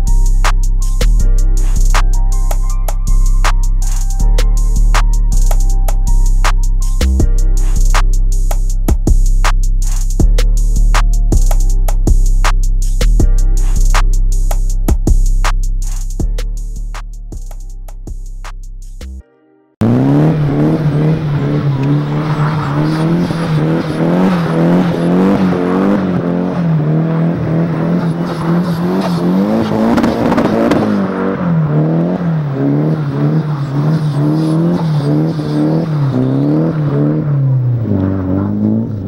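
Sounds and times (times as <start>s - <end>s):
car engine revving: 19.8s - 39.0s.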